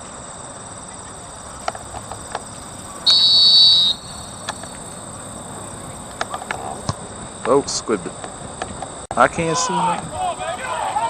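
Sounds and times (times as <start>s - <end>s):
steady high hum: 0.0s - 11.0s
referee's whistle blast: 3.0s - 4.6s.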